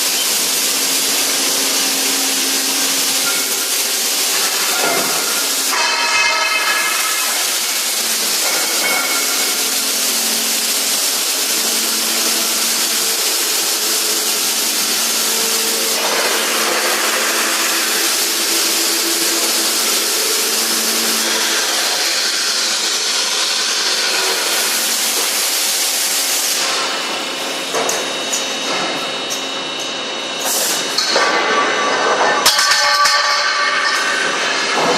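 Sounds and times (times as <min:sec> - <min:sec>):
welding machine hissing: 0:00.0 - 0:29.8, 0:30.4 - 0:31.8
low machine hum: 0:00.0 - 0:34.9.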